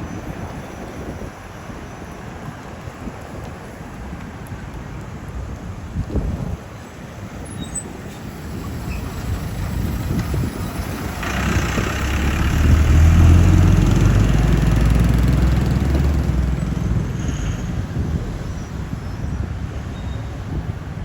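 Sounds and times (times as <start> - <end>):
truck engine passing by: 7.4 - 21.0.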